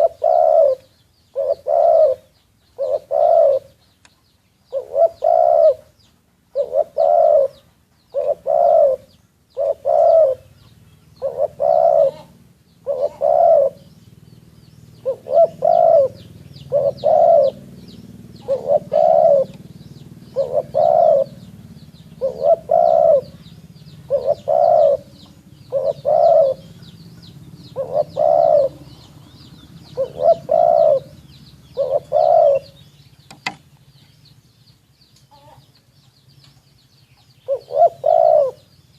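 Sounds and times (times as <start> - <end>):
dove cooing: 0.0 - 4.0, 4.6 - 33.6, 37.2 - 38.7
small birds chirping: 0.0 - 38.9.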